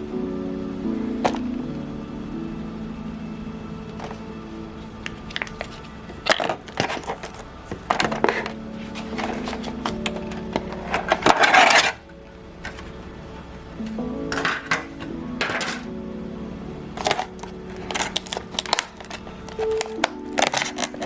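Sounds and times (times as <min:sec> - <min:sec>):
soft background music: 0:00.0 - 0:21.0
noisy scrape or rustle: 0:05.4 - 0:12.0
dishes and cutlery clinking: 0:14.3 - 0:15.9.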